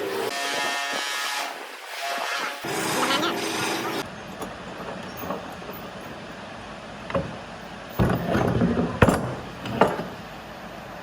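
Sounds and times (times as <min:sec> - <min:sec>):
sharp knocks: 0:04.0 - 0:10.2
rumbling clatter: 0:04.0 - 0:10.3.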